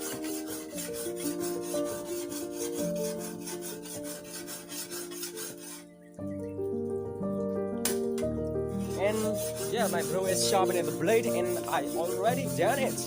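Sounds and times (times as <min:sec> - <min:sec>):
file scraping steel blade: 0:00.0 - 0:05.9, 0:08.8 - 0:13.0.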